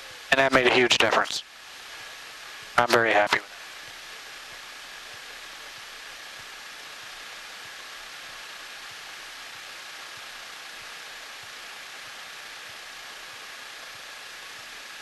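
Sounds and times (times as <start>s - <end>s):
cockpit noise hiss: 0.2s - 3.6s.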